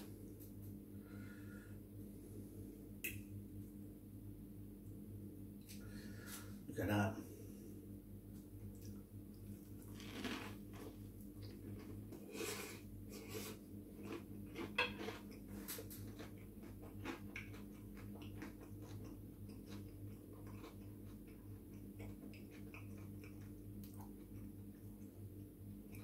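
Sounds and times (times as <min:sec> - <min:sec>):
wet chewing clicks: 0:14.0 - 0:25.2.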